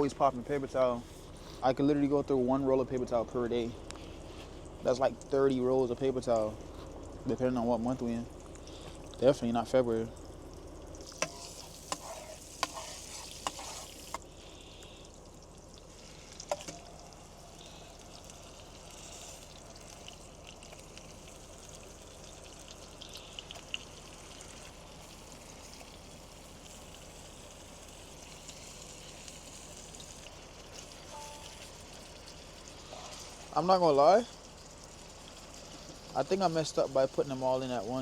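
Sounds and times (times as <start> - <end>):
food sizzling in a pot: 11.0 - 15.0, 15.9 - 33.6.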